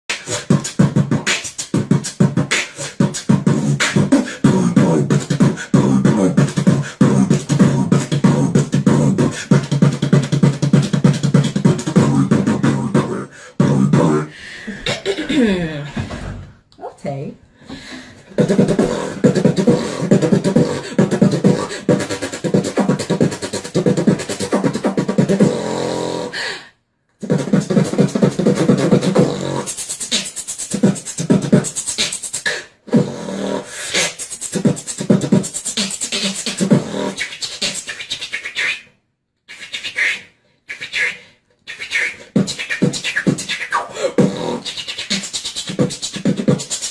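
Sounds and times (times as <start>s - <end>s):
beatboxing: 0.0s - 16.3s, 17.8s - 26.6s, 27.2s - 46.9s.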